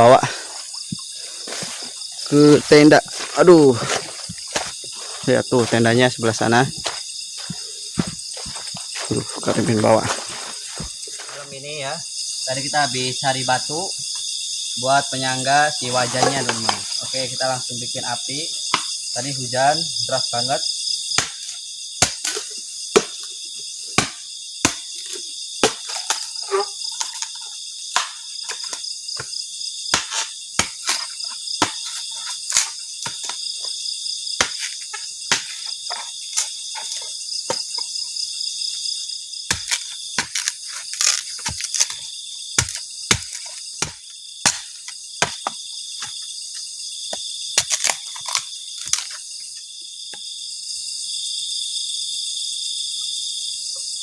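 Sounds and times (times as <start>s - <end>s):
crickets and insects chirping: 0.0s - 54.0s
sharp snaps and knocks: 24.0s - 29.3s, 39.5s - 46.2s, 47.1s - 49.2s.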